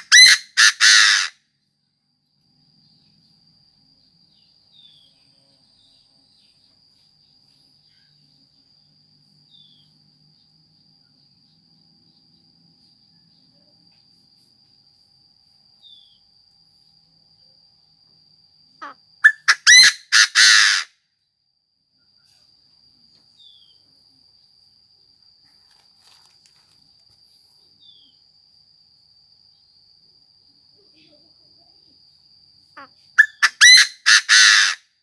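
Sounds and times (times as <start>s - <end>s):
bird harsh calls: 0.0s - 1.3s, 18.8s - 20.9s, 32.8s - 34.8s
insect trill: 0.0s - 35.0s.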